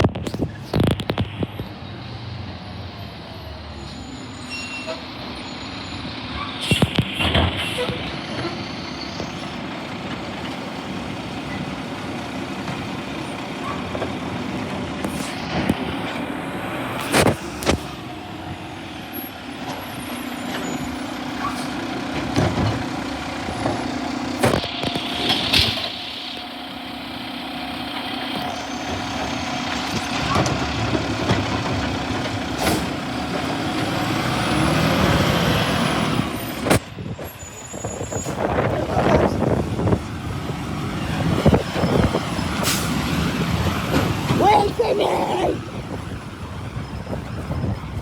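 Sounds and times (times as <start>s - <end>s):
garbage truck running: 2.6s - 48.0s
air brake hiss: 32.6s - 32.9s, 42.6s - 43.0s.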